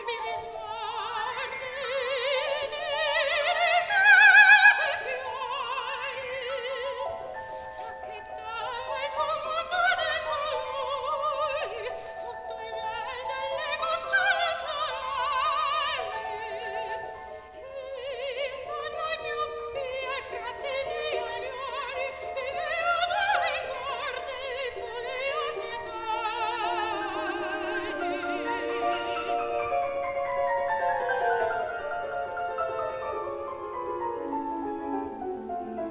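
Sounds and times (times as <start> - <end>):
piano accompaniment: 0.0 - 35.9
soprano singing with vibrato: 0.0 - 35.9.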